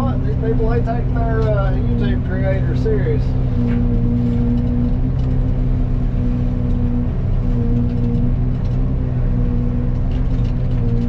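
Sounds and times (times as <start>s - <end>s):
excavator diesel engine drone: 0.0s - 11.0s.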